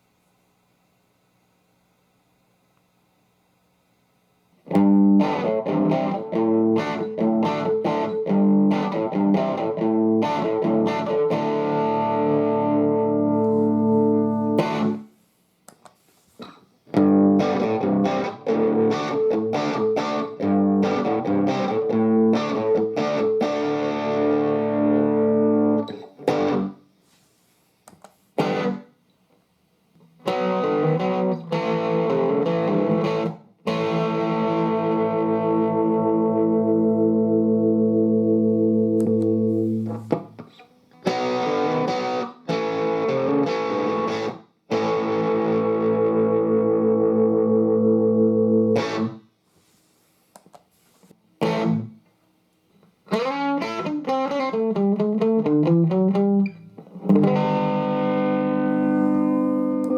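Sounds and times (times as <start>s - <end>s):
electric guitar chords: 4.7s - 15.1s, 16.9s - 26.8s, 28.4s - 29.0s, 30.0s - 49.2s, 51.4s - 52.0s, 53.1s - 59.9s.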